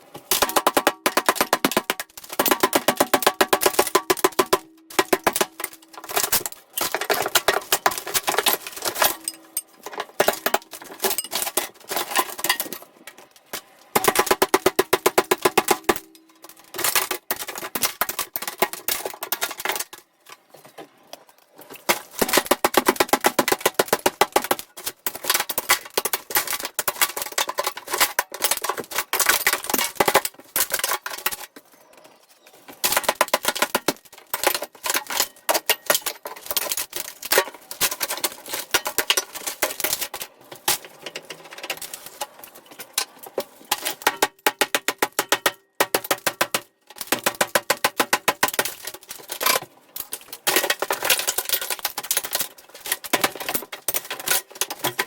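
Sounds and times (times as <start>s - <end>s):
rapid sharp clicks and knocks: 0.3s - 12.8s, 13.5s - 20.0s, 21.9s - 31.5s, 32.8s - 40.8s, 43.7s - 49.2s.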